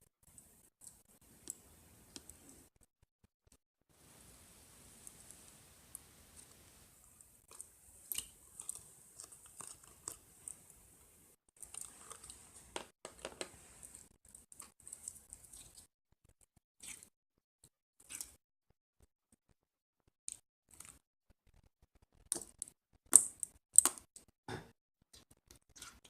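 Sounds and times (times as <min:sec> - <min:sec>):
low hiss: 0:04.0 - 0:07.3
clicks and crackles: 0:20.3 - 0:24.3.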